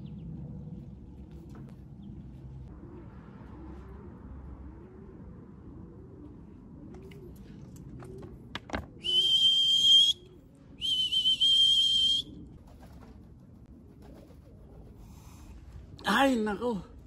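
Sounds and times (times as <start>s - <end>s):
pigeons cooing softly: 0.0s - 9.4s, 10.2s - 16.0s
high-pitched whistle blasts: 9.0s - 10.2s, 10.8s - 12.2s.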